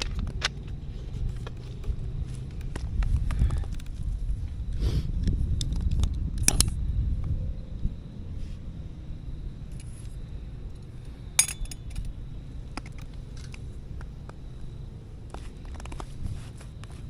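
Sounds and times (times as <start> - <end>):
steady low rumble: 0.0 - 17.0
metal cutlery clinking: 11.4 - 12.0.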